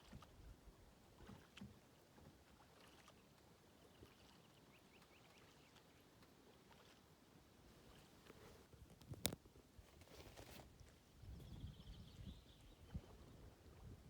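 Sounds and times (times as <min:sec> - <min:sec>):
paddle splashes on water: 0:00.0 - 0:08.7.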